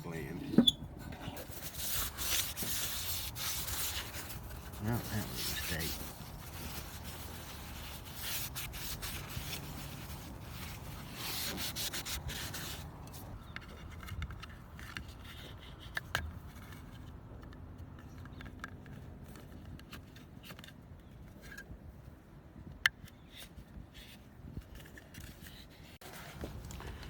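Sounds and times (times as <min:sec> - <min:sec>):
cloth rubbing on metal panel: 0:00.5 - 0:13.4.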